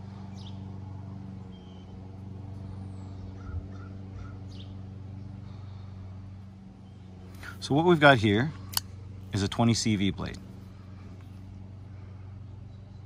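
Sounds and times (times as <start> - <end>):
steady low hum: 0.0 - 13.0
faint bird calls: 1.4 - 7.6.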